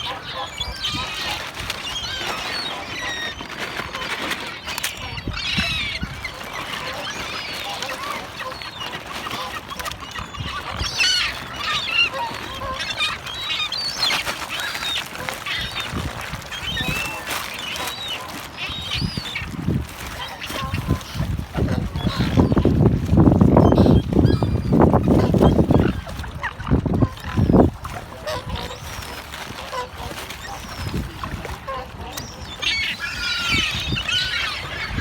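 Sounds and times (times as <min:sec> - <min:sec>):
waterbirds calling: 0:00.0 - 0:35.0.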